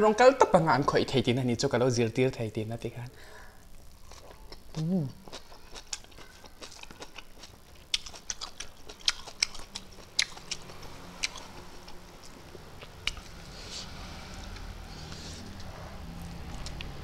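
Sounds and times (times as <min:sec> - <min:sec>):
chewing and crunching prawns: 0:04.0 - 0:17.0.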